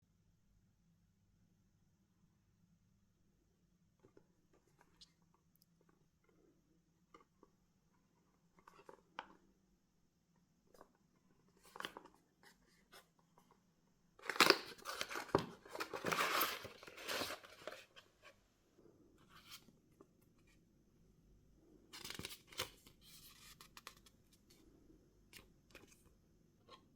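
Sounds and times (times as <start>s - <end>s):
packaging rustling and tearing: 14.2s - 17.9s.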